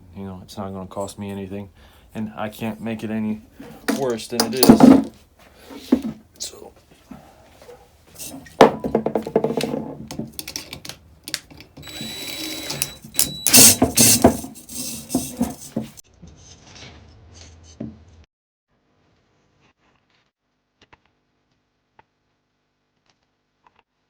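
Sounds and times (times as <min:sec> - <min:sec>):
metal tools clattering: 0:03.6 - 0:05.1, 0:08.2 - 0:16.0
power drill running: 0:08.2 - 0:09.0, 0:10.1 - 0:16.0.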